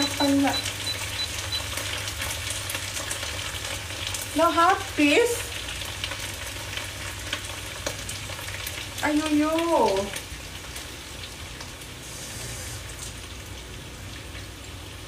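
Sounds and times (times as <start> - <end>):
oil spattering crackles: 0.0 - 12.0
vegetables sizzling in a wok: 0.0 - 15.0.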